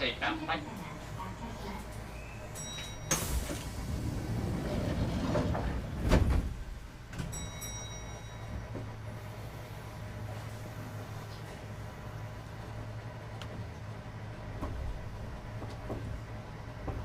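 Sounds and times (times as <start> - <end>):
train car low hum: 0.0 - 17.0
sliding doors closing with thud: 2.9 - 7.6, 12.6 - 17.0.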